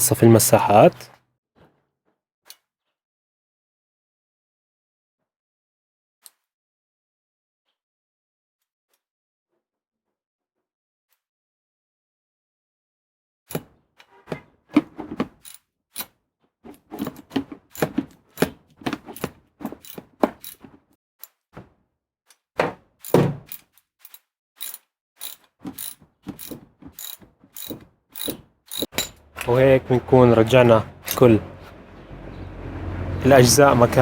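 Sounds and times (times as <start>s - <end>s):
hand tools clicking and knocking: 16.7s - 21.4s, 23.0s - 30.0s.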